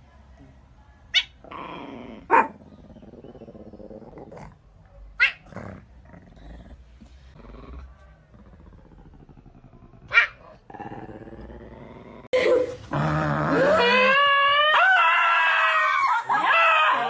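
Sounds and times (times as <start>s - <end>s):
dog growling: 1.4s - 4.6s, 5.4s - 6.8s, 7.4s - 15.0s
dog barking: 2.3s - 2.6s, 5.2s - 5.5s, 10.1s - 10.4s.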